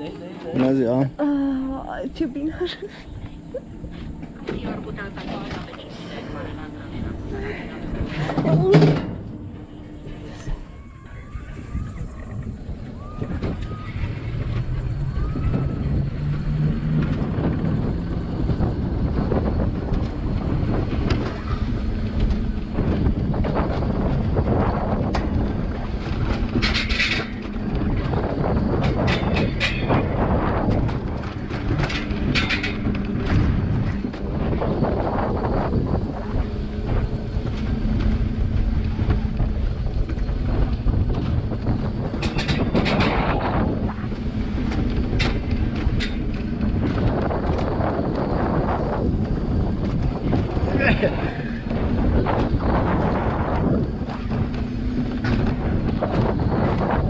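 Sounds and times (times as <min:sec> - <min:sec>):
faint hum: 0:00.0 - 0:57.0
vehicle rumble: 0:00.0 - 0:57.0
wind buffeting microphone: 0:00.0 - 0:57.0
clicks and rattles: 0:25.0 - 0:34.3, 0:37.5 - 0:48.4.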